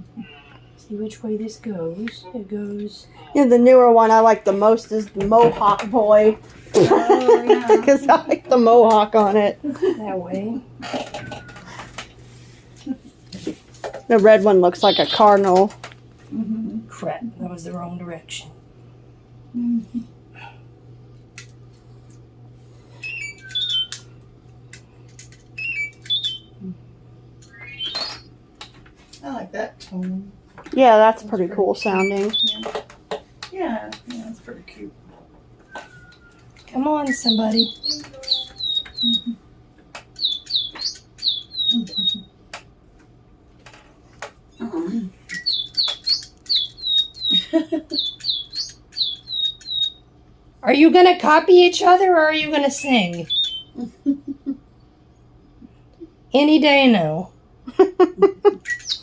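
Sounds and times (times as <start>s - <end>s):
steady low hum: 0.0s - 59.0s
electronic bird chirps and whistles: 14.8s - 15.4s, 23.0s - 24.0s, 25.6s - 26.6s, 27.4s - 28.3s, 31.8s - 32.8s, 35.7s - 39.4s, 40.1s - 42.3s, 45.3s - 50.1s, 52.8s - 53.8s, 58.6s - 59.0s.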